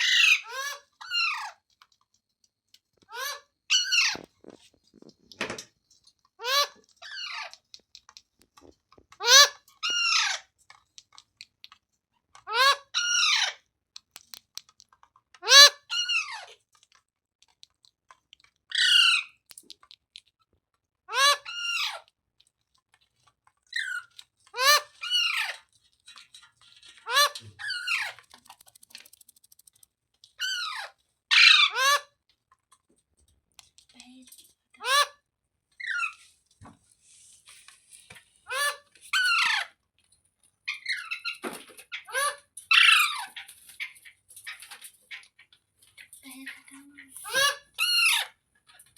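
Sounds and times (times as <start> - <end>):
parrot squawking: 0.0 - 1.5, 3.1 - 4.2, 6.4 - 7.6, 9.2 - 10.4, 12.4 - 13.6, 15.4 - 16.5, 18.7 - 19.4, 21.1 - 22.0, 23.7 - 25.6, 27.0 - 28.2, 30.4 - 32.1, 34.8 - 35.2, 35.8 - 36.2, 38.4 - 39.8, 40.7 - 45.4, 47.2 - 48.4.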